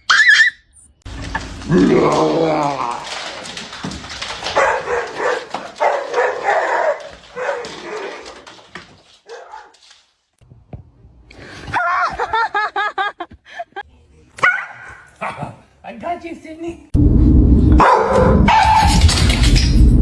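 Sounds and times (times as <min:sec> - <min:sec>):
dog barking and whining: 0:00.0 - 0:00.8, 0:04.2 - 0:09.8, 0:14.4 - 0:15.5, 0:17.8 - 0:19.2.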